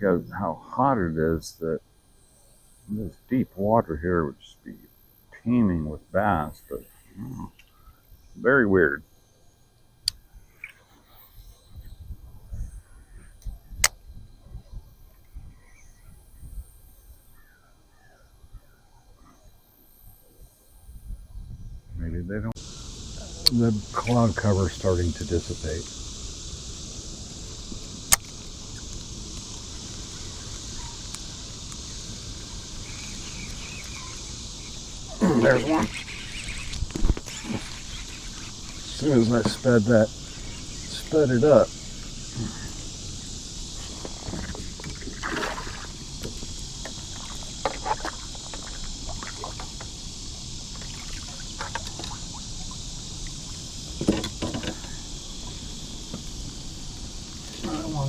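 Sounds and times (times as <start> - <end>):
insects buzzing: 0.0 - 58.0
sharp click: 28.0 - 29.6
water splashes and drips: 43.9 - 55.0.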